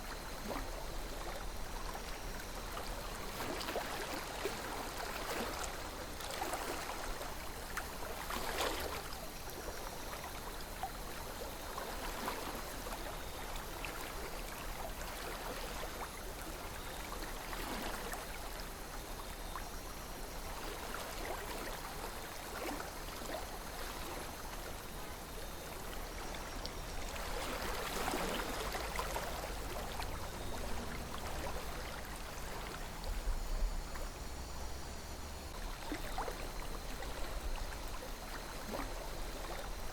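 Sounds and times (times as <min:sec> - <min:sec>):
river water flowing: 0:00.0 - 0:10.8, 0:20.3 - 0:39.9.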